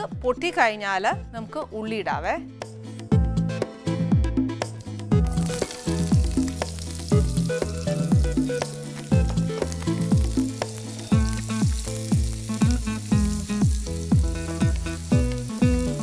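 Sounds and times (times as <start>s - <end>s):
background music with beat: 2.5s - 16.0s
onion sizzling in oil: 4.7s - 16.0s.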